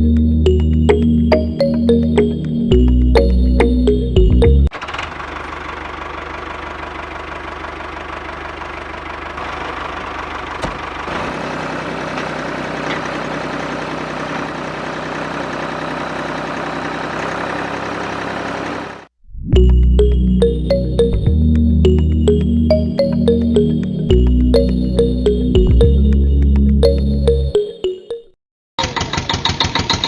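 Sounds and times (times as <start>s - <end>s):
small motor knocking: 28.8s - 30.0s.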